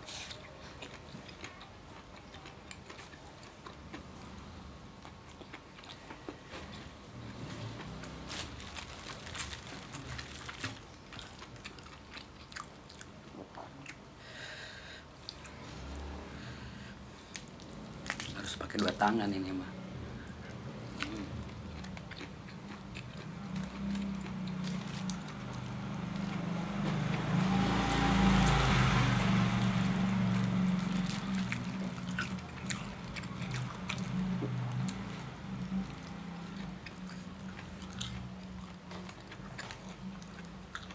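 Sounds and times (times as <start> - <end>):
person chewing food: 0.0 - 4.4, 5.0 - 14.0, 20.2 - 40.9
low rumble of road traffic: 0.0 - 40.9
motorbike engines running: 22.8 - 38.4.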